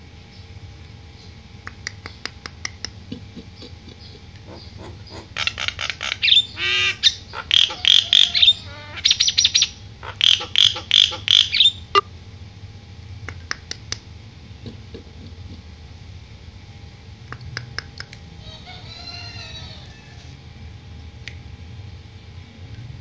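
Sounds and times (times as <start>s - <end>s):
bird clicks: 1.6s - 3.0s, 13.3s - 14.0s, 17.3s - 18.2s
myna harsh rapid calls: 2.4s - 12.0s.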